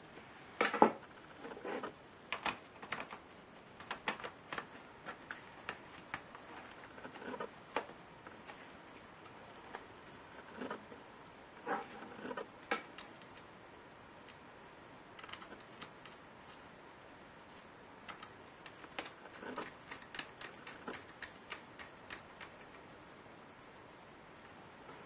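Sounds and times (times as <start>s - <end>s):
small clicks and taps of tools: 18.1s - 22.8s.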